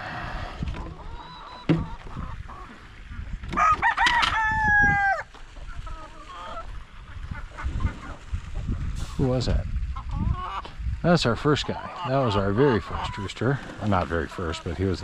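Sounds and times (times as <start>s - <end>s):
rooster crowing: 3.6s - 5.3s.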